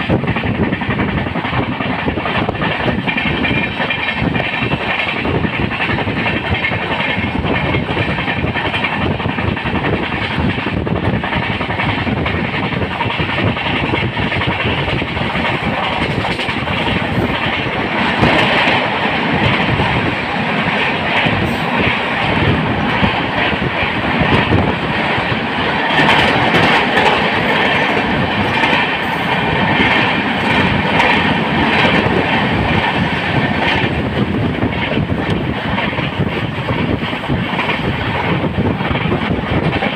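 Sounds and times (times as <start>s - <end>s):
train coaches rumbling and rattling: 0.0s - 39.9s.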